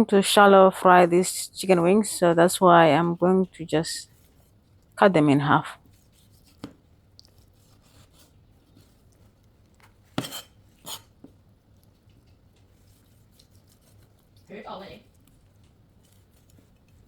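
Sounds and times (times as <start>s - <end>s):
knife cutting chicken wings: 6.2s - 11.4s.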